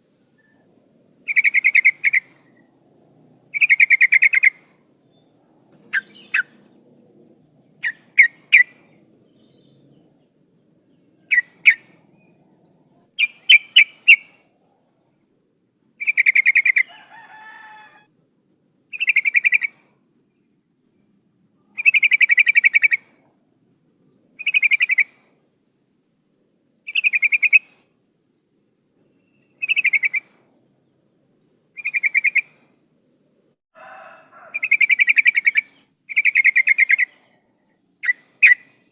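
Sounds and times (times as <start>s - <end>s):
bird calling: 0.4s - 4.8s, 5.7s - 7.1s, 7.7s - 9.8s, 11.2s - 12.0s, 12.9s - 14.4s, 18.9s - 19.8s, 21.7s - 23.2s, 24.4s - 25.2s, 26.9s - 27.8s, 29.0s - 30.5s, 31.7s - 32.8s, 34.4s - 37.4s, 38.0s - 38.9s.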